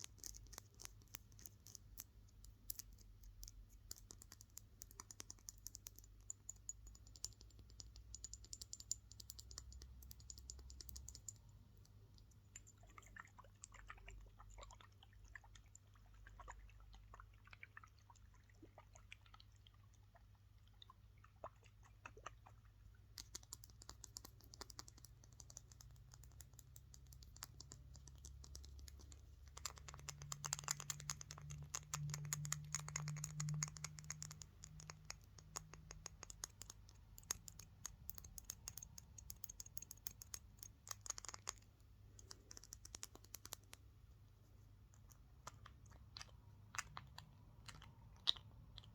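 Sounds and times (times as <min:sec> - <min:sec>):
fast tapping and scratching: 0:23.2 - 0:43.8.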